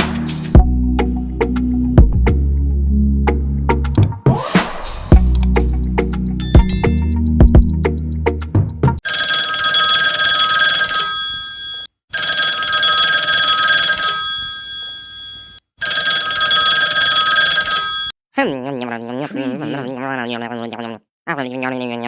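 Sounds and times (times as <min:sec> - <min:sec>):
chiming music: 0:06.4 - 0:07.2
telephone ringing: 0:09.0 - 0:18.1.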